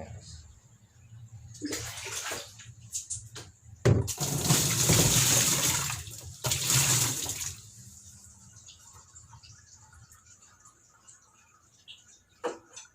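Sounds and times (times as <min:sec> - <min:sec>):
water gushing and splashing: 0:04.1 - 0:07.7.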